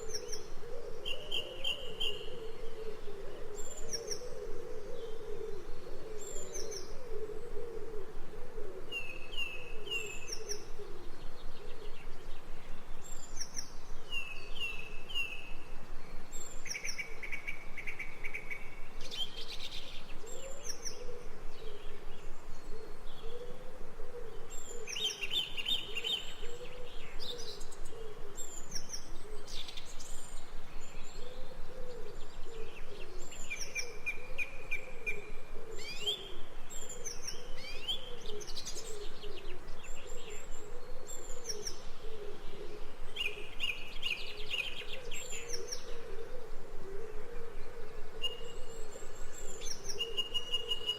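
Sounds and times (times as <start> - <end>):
birds chirping and trilling: 24.3 - 50.9.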